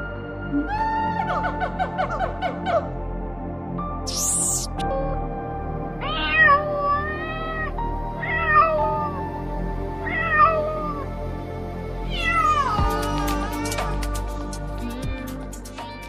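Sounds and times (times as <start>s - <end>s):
background music: 0.0s - 16.0s
cat meowing: 6.0s - 9.2s, 10.0s - 11.0s, 12.1s - 13.6s, 14.9s - 16.0s.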